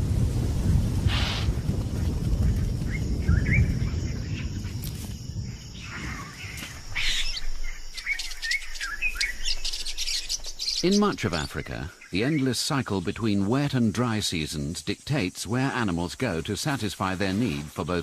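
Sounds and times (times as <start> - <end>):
distant thunder rumble: 0.0 - 7.8
birds chirping: 1.2 - 18.0.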